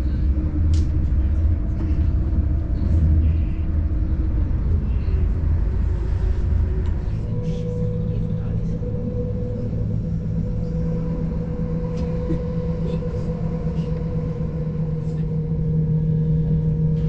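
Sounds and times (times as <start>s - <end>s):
train rumbling inside carriage: 0.0s - 17.0s.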